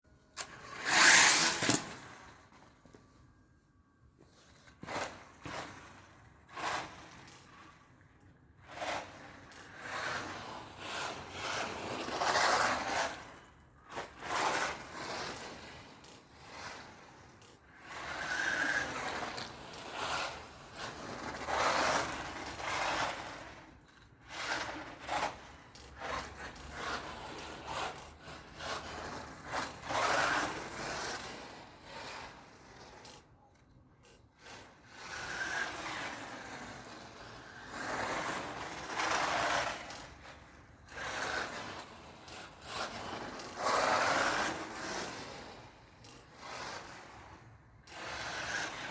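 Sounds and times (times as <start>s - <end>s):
tyres scraping on pavement: 24.3s - 33.0s, 34.9s - 45.7s.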